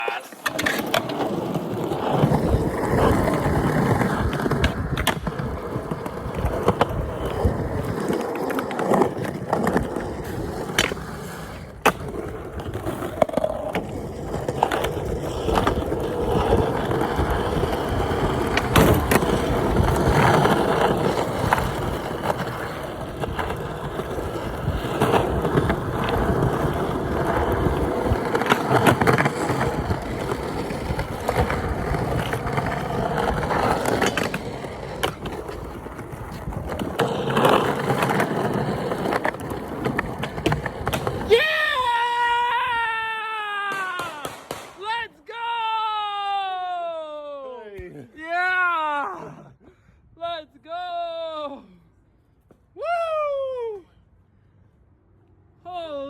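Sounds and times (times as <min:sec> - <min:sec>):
skateboard wheels rolling on pavement: 0:00.0 - 0:47.3
skateboard clacking on ground: 0:00.1 - 0:41.4, 0:43.6 - 0:44.8.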